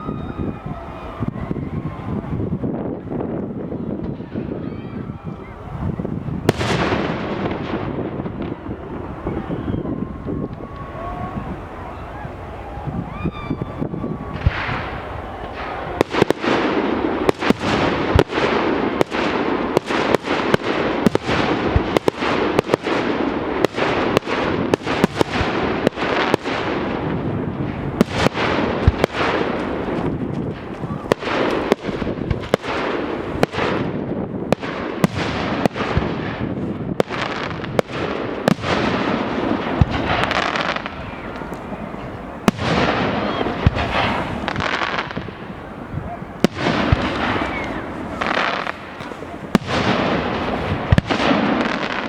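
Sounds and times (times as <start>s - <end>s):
fireworks bangs: 0.0s - 52.0s
dense rushing noise: 38.3s - 51.2s.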